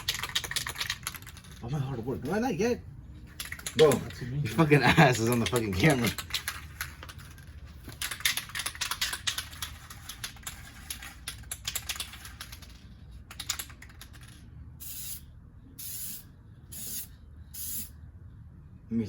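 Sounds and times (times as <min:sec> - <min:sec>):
spray can rattling: 0:00.0 - 0:01.6, 0:03.3 - 0:04.2, 0:05.1 - 0:15.2.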